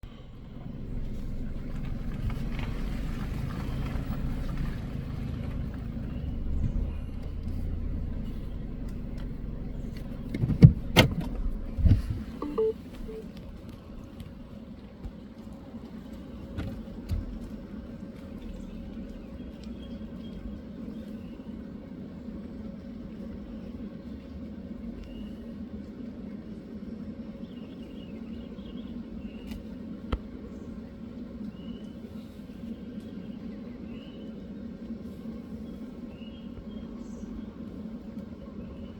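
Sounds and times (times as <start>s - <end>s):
car cabin rumble: 0.0s - 14.6s
short beeps: 12.4s - 13.2s.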